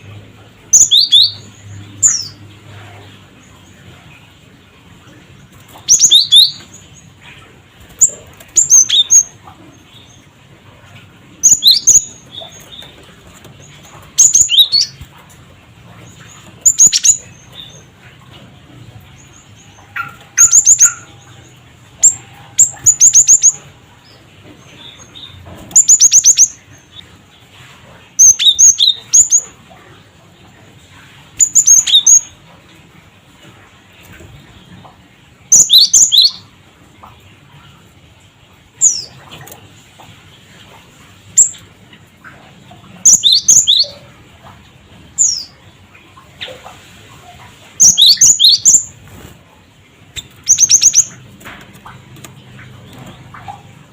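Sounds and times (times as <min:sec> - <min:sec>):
bird sharp high chirps: 0:19.9 - 0:21.3, 0:50.2 - 0:51.2.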